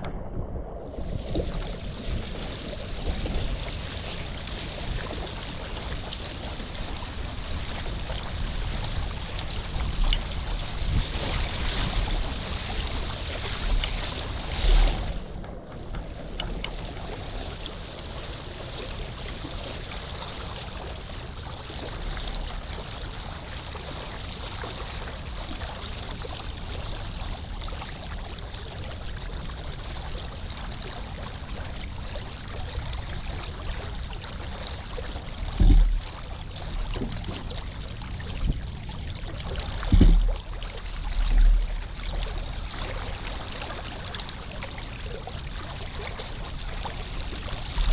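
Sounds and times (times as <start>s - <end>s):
wind buffeting microphone: 0.0s - 19.6s
water rushing along hull: 0.0s - 47.9s.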